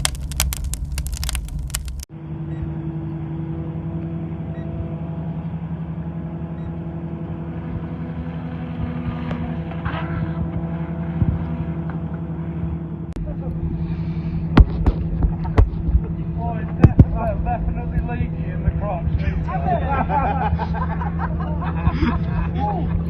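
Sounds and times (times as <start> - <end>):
dense crackling clicks: 0.0 - 2.1
steady motor drone: 0.0 - 23.0.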